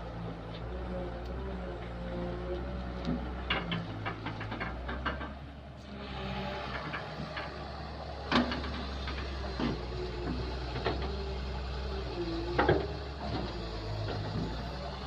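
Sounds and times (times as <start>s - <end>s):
excavator diesel engine running: 0.0s - 15.0s
metal clanks and knocks: 3.1s - 5.6s, 6.6s - 11.3s.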